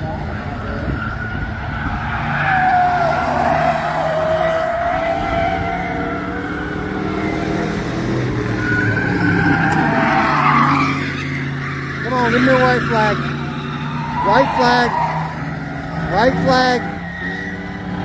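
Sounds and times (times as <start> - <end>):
race car engines: 0.0 - 18.0
tire squeal: 0.0 - 18.0.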